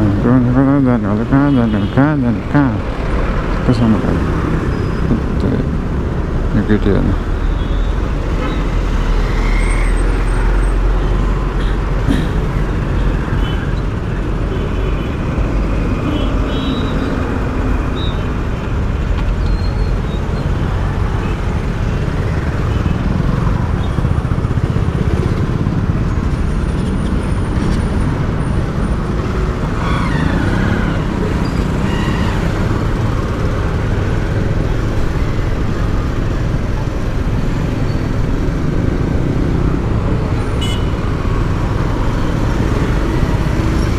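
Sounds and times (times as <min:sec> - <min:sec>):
motorcycle engine tyres and wind: 0:12.6 - 0:43.9.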